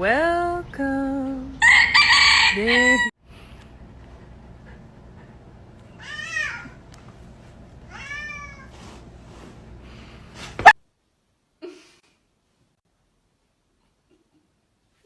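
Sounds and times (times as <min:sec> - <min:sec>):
cat meowing: 0:06.0 - 0:06.8, 0:07.9 - 0:08.7.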